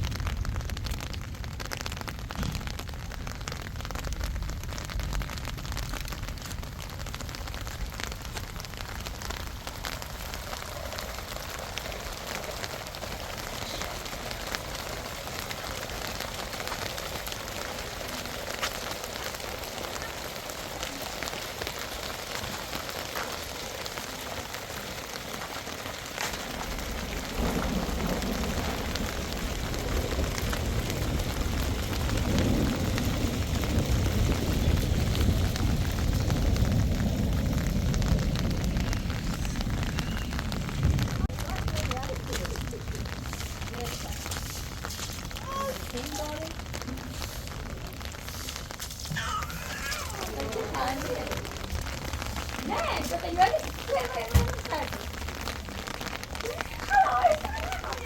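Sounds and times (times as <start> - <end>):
steady rain falling: 0.0 - 58.0
low rumble: 26.5 - 49.4.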